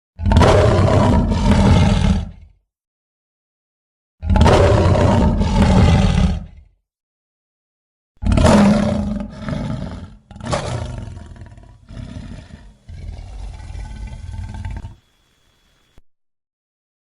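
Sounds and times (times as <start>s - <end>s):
lion roaring: 0.2s - 2.6s, 4.2s - 6.7s, 8.2s - 15.0s.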